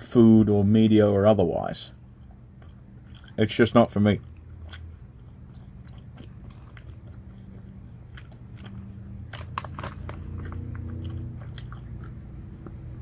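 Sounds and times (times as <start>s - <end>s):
person chewing gummy sweets: 1.9s - 13.0s.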